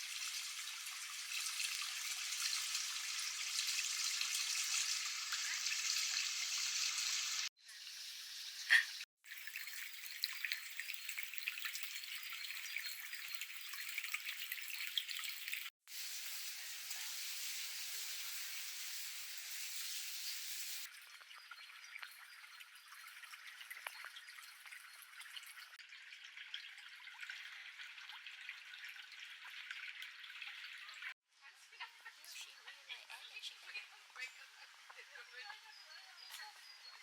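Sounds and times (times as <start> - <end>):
water trickling: 0.0 - 8.6, 9.2 - 31.2.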